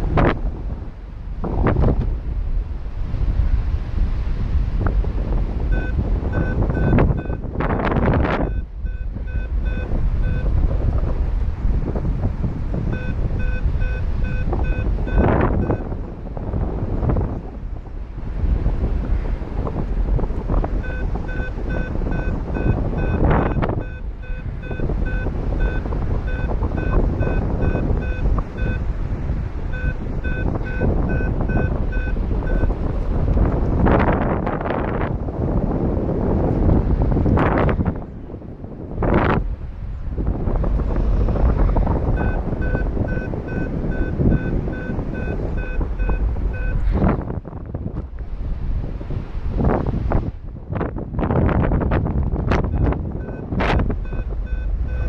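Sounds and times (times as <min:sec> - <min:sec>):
wind noise on microphone: 0:00.0 - 0:55.0
variometer short beeps: 0:05.6 - 0:11.0, 0:12.7 - 0:16.1, 0:20.4 - 0:33.6, 0:41.4 - 0:47.2, 0:52.6 - 0:55.0.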